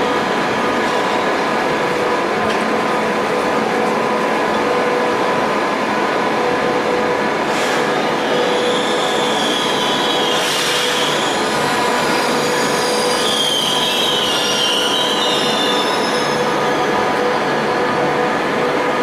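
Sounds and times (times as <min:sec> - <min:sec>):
train running on rails: 0:00.0 - 0:19.0
high-pitched wheel squeal: 0:08.2 - 0:16.9.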